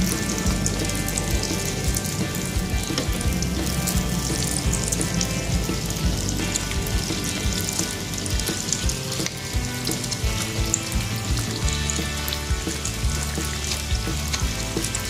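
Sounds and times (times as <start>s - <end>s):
bread rolls deep-frying in oil: 4.5s - 15.0s.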